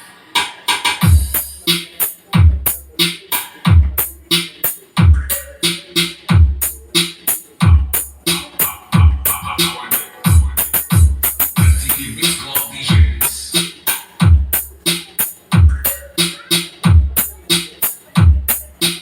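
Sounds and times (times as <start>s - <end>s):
electronic dance track over speaker: 0.0s - 19.0s
hi-hats and snare hits: 0.0s - 19.0s
deep kick drum: 1.0s - 1.5s, 2.4s - 2.8s, 3.6s - 4.1s, 5.0s - 5.3s, 6.3s - 6.7s, 7.6s - 9.6s, 10.3s - 12.0s, 12.9s - 13.3s, 14.2s - 14.7s, 15.5s - 15.9s, 16.8s - 17.2s, 18.2s - 18.6s.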